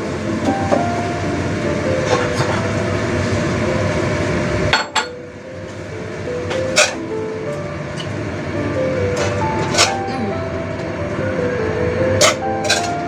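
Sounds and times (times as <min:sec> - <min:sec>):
food frying in a wok: 0:00.0 - 0:10.0
soft background music: 0:00.0 - 0:13.0.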